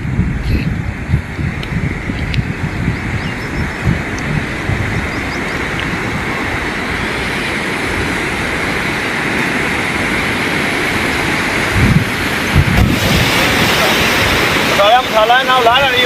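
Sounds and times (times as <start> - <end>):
wind rushing on microphone: 0.0 - 16.0.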